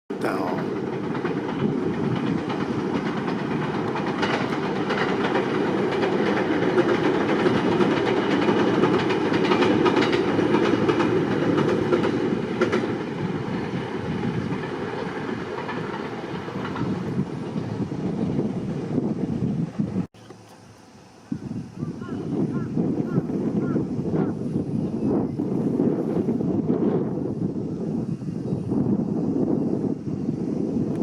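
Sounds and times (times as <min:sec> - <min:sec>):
train rumbling over steel bridge: 0:00.1 - 0:31.0
wheels clattering over rails: 0:00.4 - 0:18.3.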